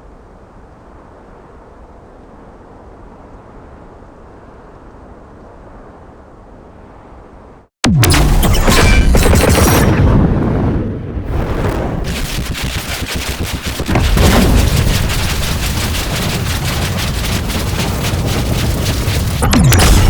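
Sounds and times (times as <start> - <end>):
heavy low rumble: 7.8 - 20.0
rapid sharp cracks: 7.9 - 10.0, 11.3 - 20.0.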